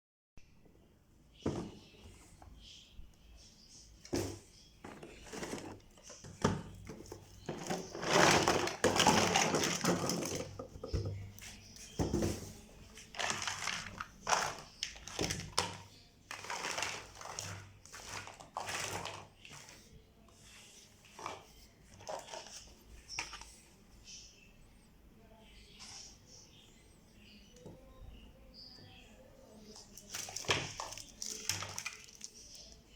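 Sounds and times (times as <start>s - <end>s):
packaging crinkling: 7.4s - 10.6s, 12.9s - 19.7s, 30.0s - 32.8s.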